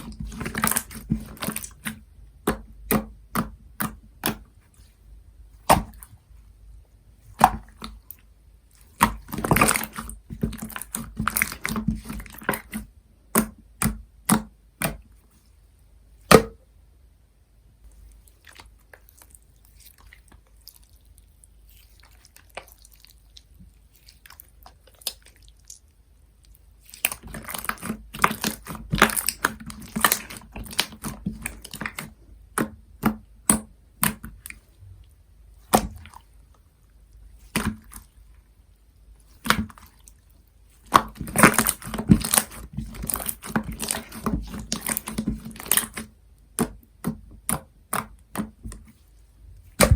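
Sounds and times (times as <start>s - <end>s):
slime squishing and popping: 0.0s - 4.5s, 8.8s - 15.1s, 26.8s - 34.6s, 40.8s - 49.0s, 49.6s - 49.9s.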